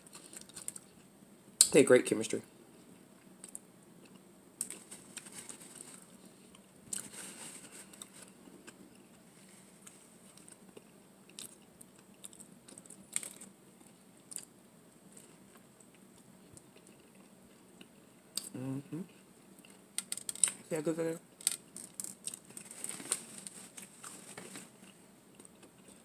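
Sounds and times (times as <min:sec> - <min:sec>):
crisp clicks and crackles: 0:00.0 - 0:01.1, 0:03.3 - 0:14.5, 0:19.6 - 0:20.6, 0:21.4 - 0:26.0
person chewing food: 0:03.4 - 0:09.2, 0:09.8 - 0:14.5, 0:15.1 - 0:18.5, 0:19.1 - 0:20.6, 0:21.4 - 0:26.0.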